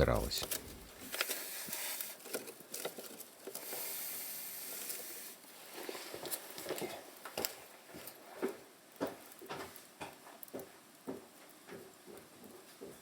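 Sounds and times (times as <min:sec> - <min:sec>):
fire hissing: 0:00.0 - 0:02.3, 0:03.5 - 0:09.5
fire crackling and popping: 0:00.0 - 0:12.9.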